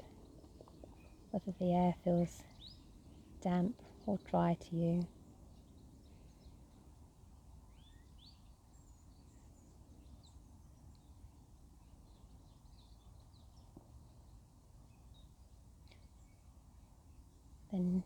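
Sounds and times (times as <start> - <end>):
low steady rumble: 0.0 - 5.1
distant bird chirps: 0.0 - 16.4.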